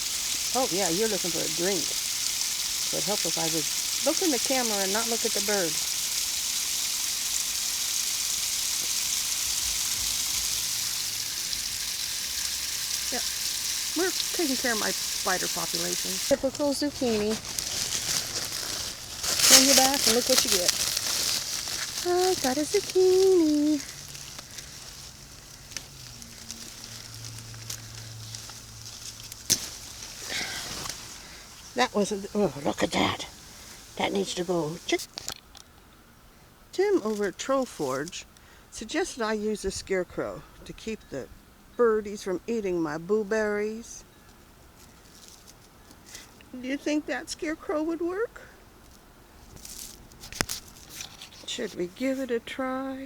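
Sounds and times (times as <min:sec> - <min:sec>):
water spraying from hose: 0:00.0 - 0:35.4
steady background hiss: 0:00.0 - 0:53.0.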